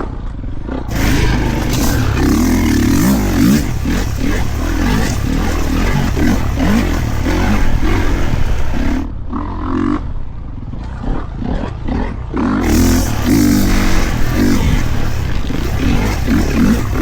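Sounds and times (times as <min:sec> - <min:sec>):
dirt bike engine revving: 0:00.9 - 0:09.1, 0:12.6 - 0:17.0.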